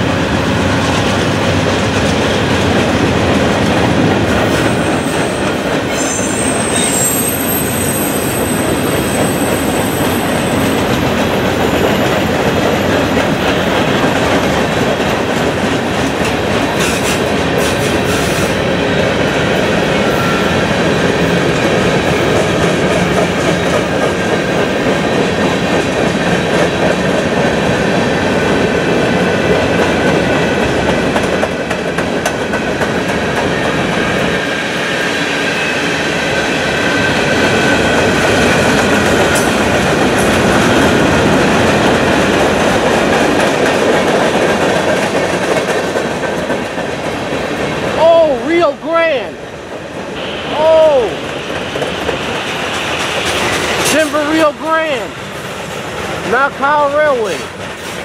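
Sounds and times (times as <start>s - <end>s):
freight cars rumbling over rails: 0.0s - 58.0s
faint high wheel squeal: 4.7s - 10.8s.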